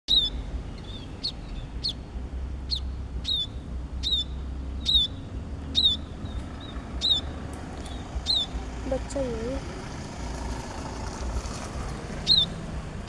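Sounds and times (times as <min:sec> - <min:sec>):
small bird chirping: 0:00.1 - 0:09.6, 0:12.2 - 0:12.7.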